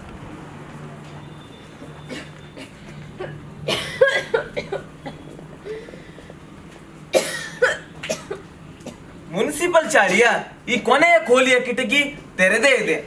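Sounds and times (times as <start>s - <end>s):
person coughing: 2.1s - 5.3s, 7.1s - 9.0s.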